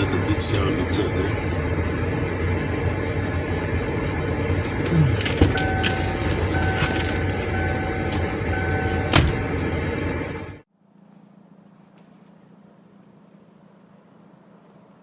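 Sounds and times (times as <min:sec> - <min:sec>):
car rumbling over dirt track: 0:00.0 - 0:10.6
electronic beep: 0:05.5 - 0:09.2.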